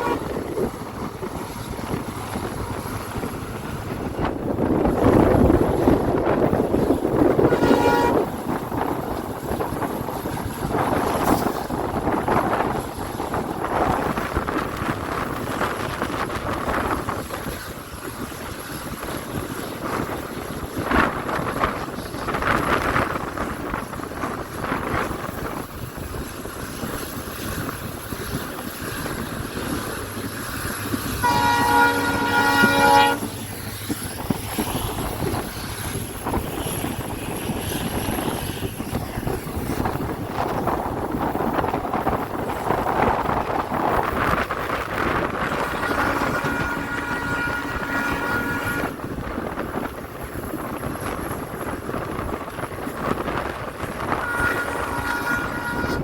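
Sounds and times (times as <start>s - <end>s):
locomotive horn: 0.0s - 0.5s, 7.2s - 8.5s, 31.2s - 33.4s, 45.5s - 49.0s, 54.0s - 56.0s
passenger train rushing: 0.0s - 56.0s.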